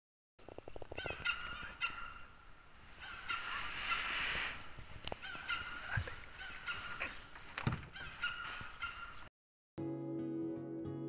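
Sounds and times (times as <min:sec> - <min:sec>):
birds honking: 0:01.0 - 0:04.2, 0:05.1 - 0:09.3.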